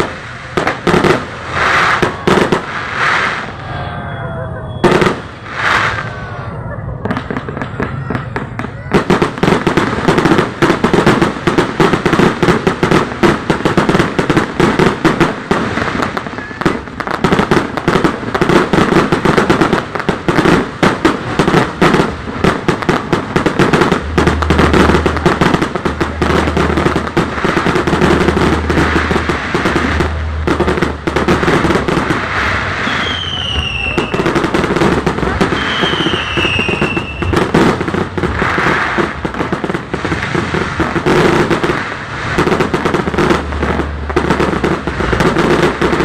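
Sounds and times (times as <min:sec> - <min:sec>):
fireworks bangs and crackles: 0:00.0 - 0:46.0
low rumble: 0:23.0 - 0:32.8.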